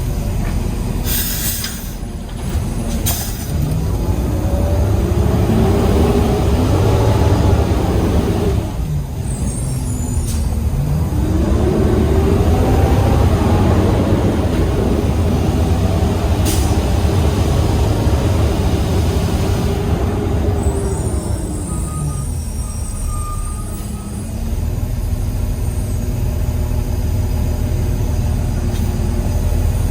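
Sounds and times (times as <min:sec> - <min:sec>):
truck engine running: 0:00.0 - 0:22.8
air hiss: 0:01.0 - 0:02.0, 0:16.4 - 0:17.2.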